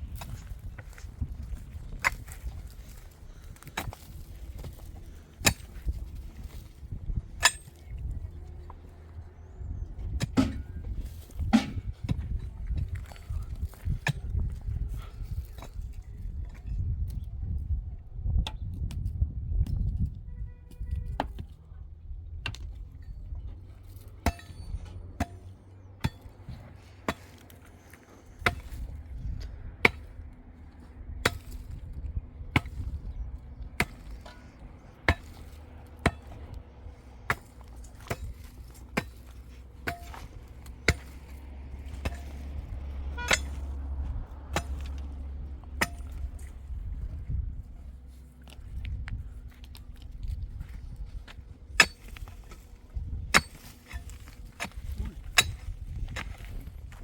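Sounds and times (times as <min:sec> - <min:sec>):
low steady rumble: 0:00.0 - 0:57.0
hand tool chopping strikes: 0:07.4 - 0:07.8, 0:10.2 - 0:10.8, 0:11.5 - 0:11.9, 0:37.3 - 0:41.3, 0:43.2 - 0:43.7, 0:45.7 - 0:46.3, 0:51.8 - 0:52.3, 0:53.3 - 0:56.4.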